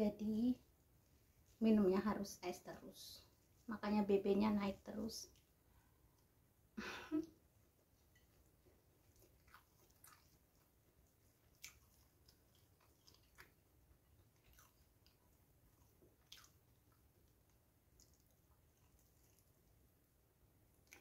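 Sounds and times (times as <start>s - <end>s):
soft mouth clicks and smacks: 7.1s - 19.8s, 20.7s - 21.0s
person chewing food: 7.6s - 19.9s, 20.7s - 21.0s.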